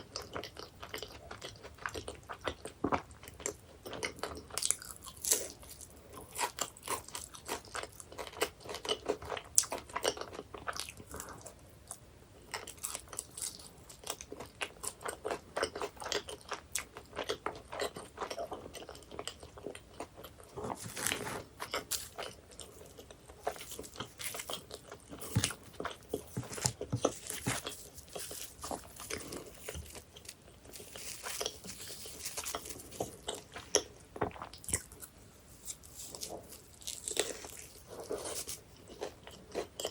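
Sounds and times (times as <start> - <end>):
wet chewing: 0.2 - 39.9
crisp pastry crackling under bites: 20.1 - 39.9.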